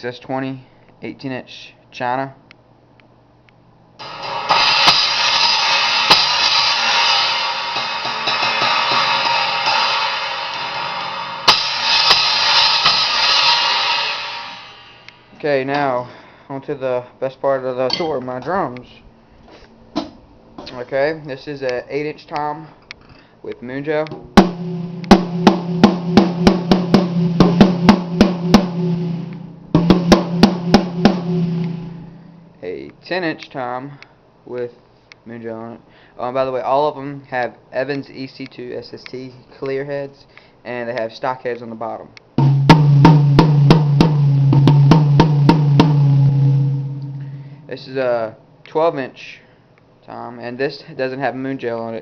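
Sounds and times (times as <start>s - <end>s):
cymbal struck and ringing: 4.0s - 15.3s, 24.4s - 32.6s, 45.2s - 47.8s
tom drum struck with drumsticks: 24.0s - 32.0s, 42.4s - 47.2s.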